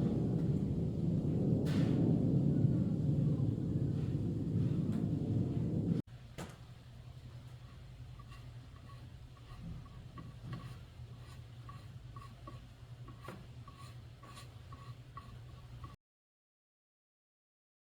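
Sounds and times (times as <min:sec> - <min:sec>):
low steady hum: 0:00.0 - 0:16.0
carving tool scratching wood: 0:07.6 - 0:16.0.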